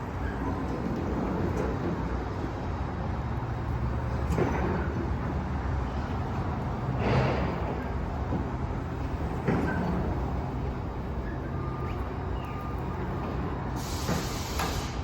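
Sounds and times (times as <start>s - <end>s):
short hiss: 13.8s - 15.0s.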